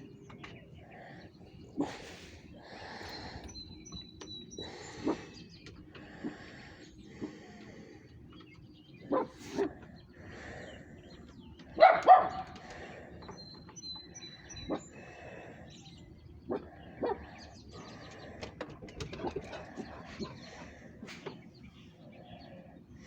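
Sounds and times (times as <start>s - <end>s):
dog barking: 9.1s - 9.7s, 11.8s - 12.5s.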